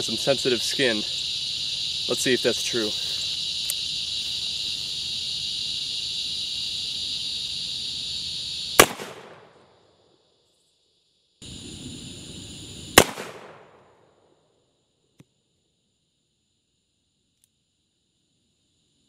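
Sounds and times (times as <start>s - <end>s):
crickets chirring: 0.0s - 19.0s
revolver gunshot: 8.8s - 9.6s, 13.0s - 13.9s.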